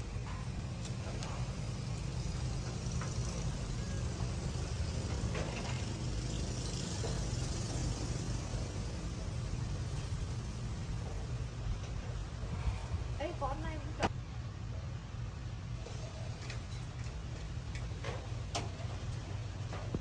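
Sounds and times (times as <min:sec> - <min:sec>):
low motor rumble: 0:00.0 - 0:20.0.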